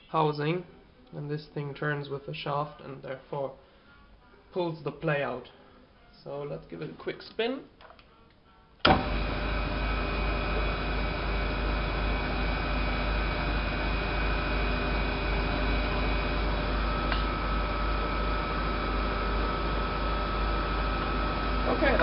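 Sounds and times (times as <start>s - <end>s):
lathe spindle humming and whining: 8.9s - 22.0s.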